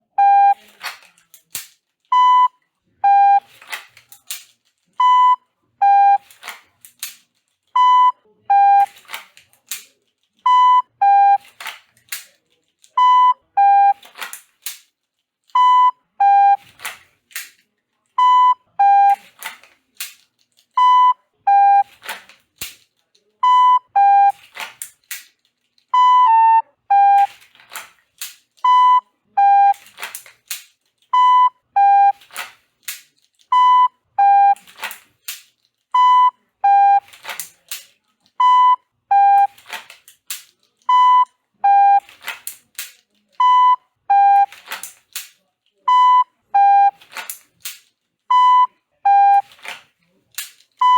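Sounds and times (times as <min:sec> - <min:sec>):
shot timer beeps: 0:02.2 - 0:03.5, 0:05.0 - 0:06.3, 0:07.8 - 0:09.0, 0:10.5 - 0:11.4, 0:15.6 - 0:16.6, 0:18.2 - 0:19.2, 0:26.0 - 0:27.3, 0:28.7 - 0:29.8, 0:31.2 - 0:32.2, 0:33.5 - 0:34.6, 0:36.0 - 0:37.1, 0:38.4 - 0:39.6, 0:40.9 - 0:42.1, 0:43.4 - 0:44.6, 0:45.9 - 0:47.0, 0:48.3 - 0:49.5.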